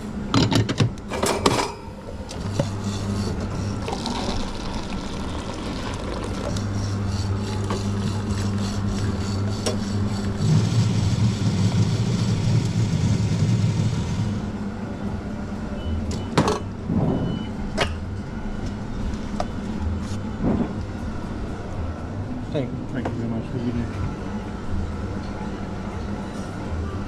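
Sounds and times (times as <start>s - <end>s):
espresso machine humming: 2.1s - 14.6s.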